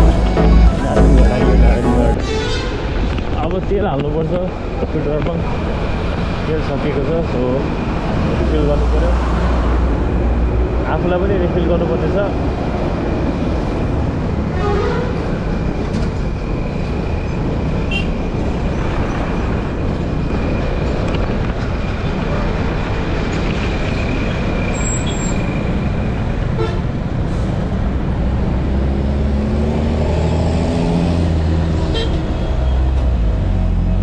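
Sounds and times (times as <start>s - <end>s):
scooter engine and wind rush: 12.4s - 24.7s.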